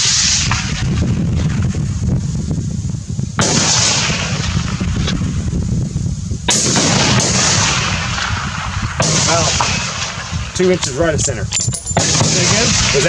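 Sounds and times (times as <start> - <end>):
rifle shot with echo: 3.4 - 5.4, 6.5 - 13.0.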